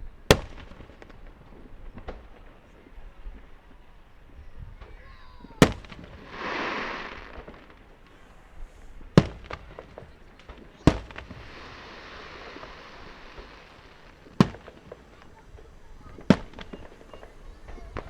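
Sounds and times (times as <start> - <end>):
firework booms: 0.0 - 3.8, 4.7 - 18.0
firework pops: 0.3 - 3.5, 4.8 - 18.0
fireworks hissing: 4.8 - 18.0.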